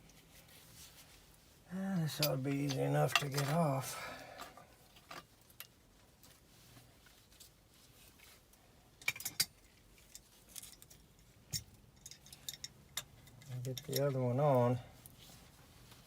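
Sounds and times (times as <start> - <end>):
metallic clicks of burners handled: 2.2 - 3.8.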